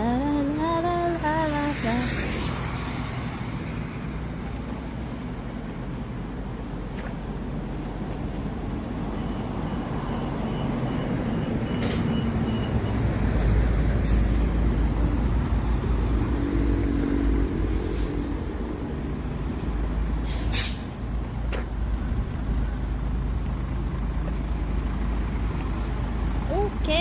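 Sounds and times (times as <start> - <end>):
vehicles passing on road: 0.0 - 27.0
short sharp hiss: 20.2 - 20.9.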